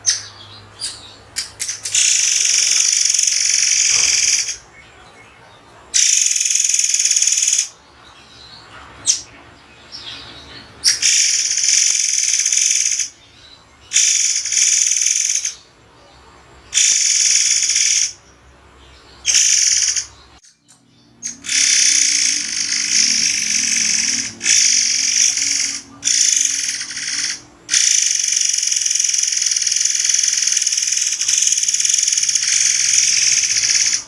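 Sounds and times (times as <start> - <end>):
songbird calling shrilly: 0.0 - 4.7, 6.0 - 7.7, 10.8 - 13.2, 13.9 - 15.7, 16.7 - 18.2, 19.2 - 20.6, 21.2 - 34.0.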